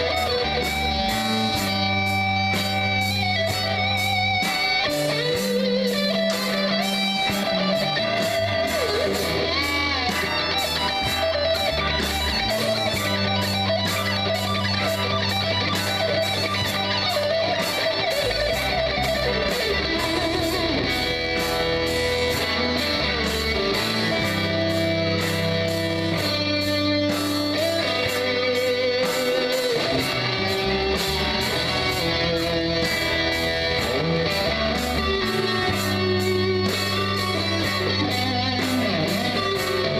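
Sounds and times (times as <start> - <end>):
bass guitar: 0.0 - 39.9
drum beat: 0.0 - 39.9
electric guitars: 0.0 - 39.9
lead guitar bending notes: 0.0 - 39.9.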